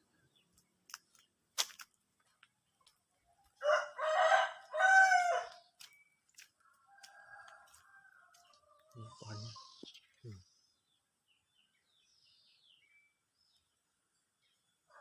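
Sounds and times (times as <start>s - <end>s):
rooster crowing: 3.6s - 5.6s, 6.7s - 8.9s.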